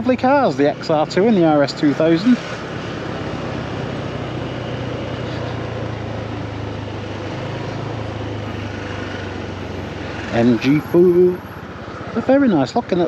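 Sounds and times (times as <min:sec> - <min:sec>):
road noise: 0:00.0 - 0:13.0
scooter engine hum: 0:00.0 - 0:13.0.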